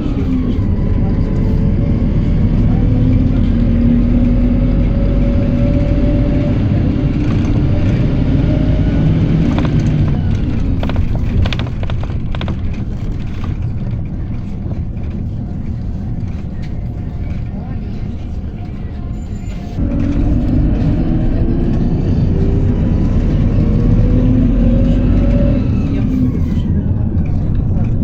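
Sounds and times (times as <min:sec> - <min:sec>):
bus engine pulling: 0:00.0 - 0:28.0
body rattle clicks and knocks: 0:09.4 - 0:17.5.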